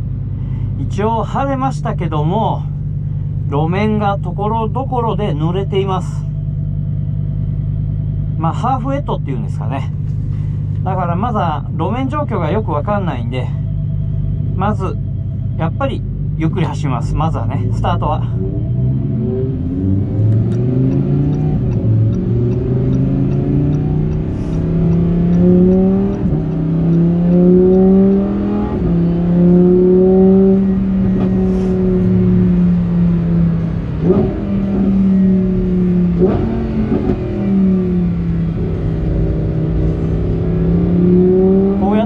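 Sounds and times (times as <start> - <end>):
sports car engine revving: 9.9 - 42.0.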